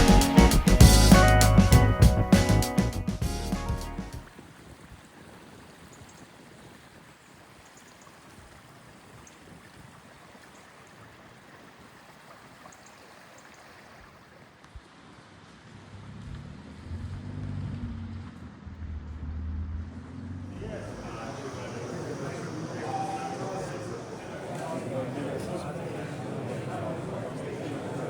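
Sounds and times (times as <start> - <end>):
music with drums: 0.0 - 4.2
faint background noise: 4.2 - 28.0.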